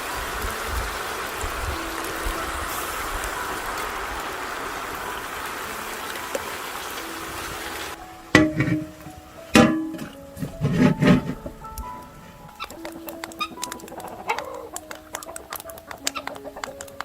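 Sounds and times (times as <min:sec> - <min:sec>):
meat and vegetables sizzling: 0:00.0 - 0:17.0
music: 0:00.0 - 0:17.0.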